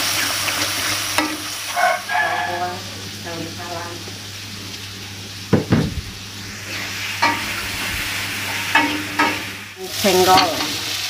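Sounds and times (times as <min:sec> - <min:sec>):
food sizzling in a wok: 0:00.0 - 0:11.0
metal spatula scraping a wok: 0:06.7 - 0:10.9.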